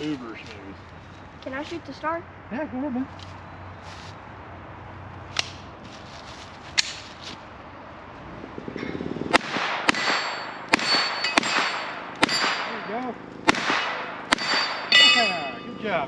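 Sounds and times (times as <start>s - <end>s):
pistol shots: 9.3s - 15.4s
steel target ringing: 9.9s - 13.0s, 13.9s - 16.0s.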